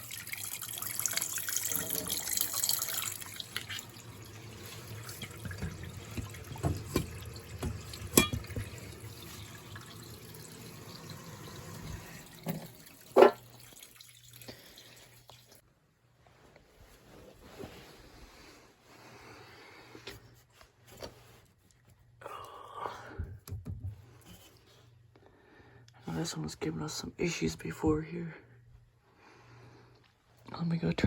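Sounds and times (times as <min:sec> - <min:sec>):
water running from a faucet: 0:00.0 - 0:15.6.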